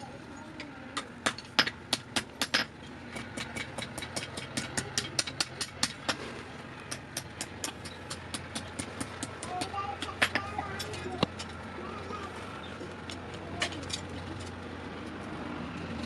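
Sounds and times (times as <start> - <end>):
hammer striking steel on anvil: 1.0 - 6.2.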